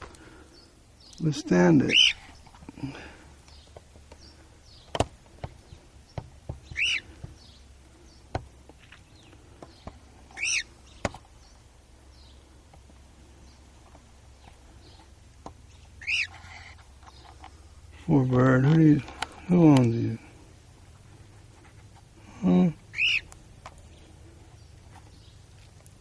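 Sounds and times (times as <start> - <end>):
cockatiel calling: 1.4 - 2.5, 6.5 - 7.6, 10.3 - 11.0, 15.7 - 17.3, 22.9 - 23.4.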